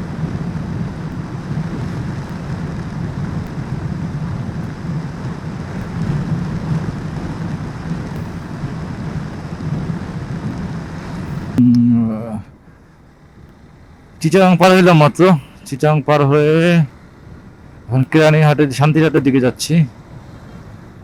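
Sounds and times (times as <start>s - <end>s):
wind rushing over microphone: 0.0s - 11.6s
motorcycle engine and road drone: 0.0s - 21.0s.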